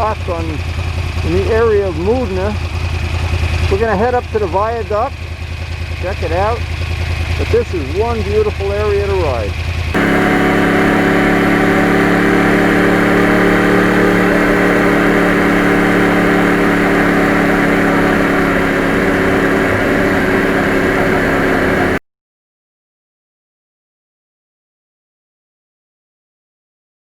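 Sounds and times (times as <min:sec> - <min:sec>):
motorcycle engine running: 0:10.0 - 0:22.0.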